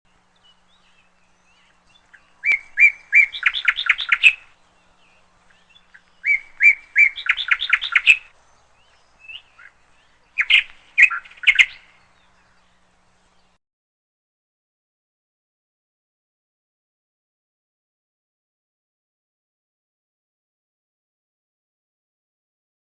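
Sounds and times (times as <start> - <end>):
songbird singing: 0.1 - 13.6.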